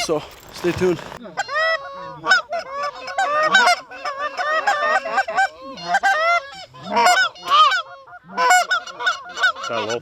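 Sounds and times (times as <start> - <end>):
geese honking: 1.2 - 10.0.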